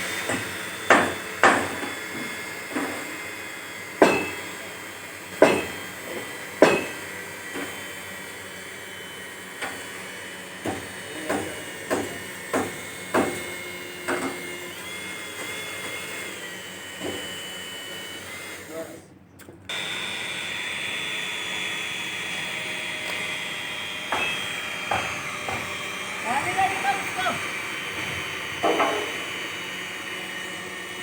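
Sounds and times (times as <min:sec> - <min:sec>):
hammer strikes: 0:04.0 - 0:04.4, 0:05.4 - 0:05.8, 0:06.6 - 0:07.0, 0:24.1 - 0:25.8, 0:28.6 - 0:29.2.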